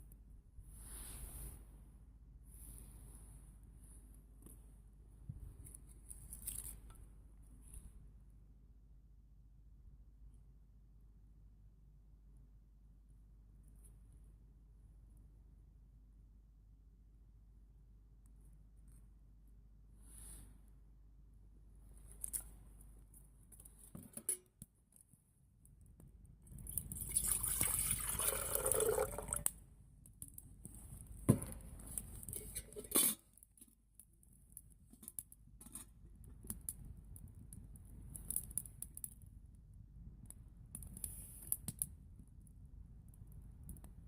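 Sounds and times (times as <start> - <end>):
liquid pouring: 26.9 - 29.5.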